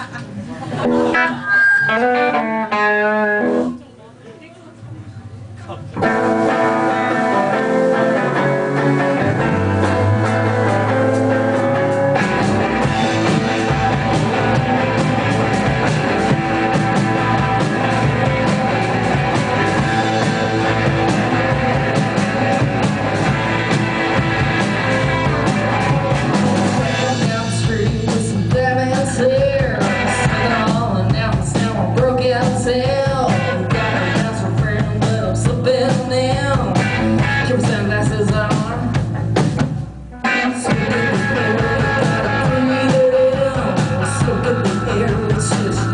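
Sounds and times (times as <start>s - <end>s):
rock band playing live: 0.0s - 3.8s, 6.0s - 45.9s
person singing: 24.5s - 39.0s, 40.2s - 45.9s.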